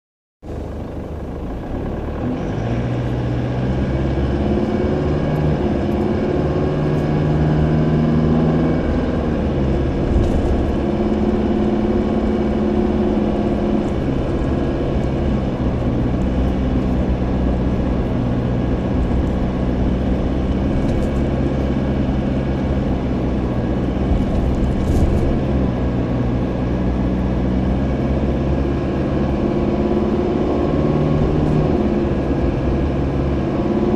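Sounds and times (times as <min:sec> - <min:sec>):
truck engine running: 0:00.4 - 0:33.9
vibration and rattle: 0:08.8 - 0:26.7.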